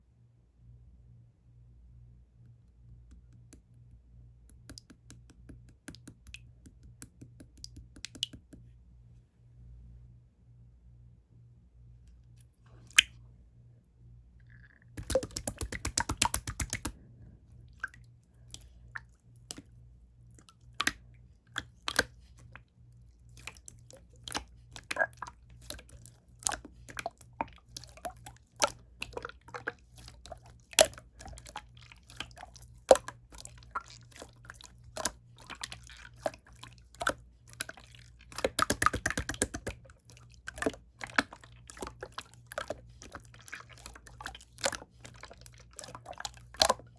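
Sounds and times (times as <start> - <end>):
slime clicking and popping: 15.0 - 17.0, 38.3 - 39.8.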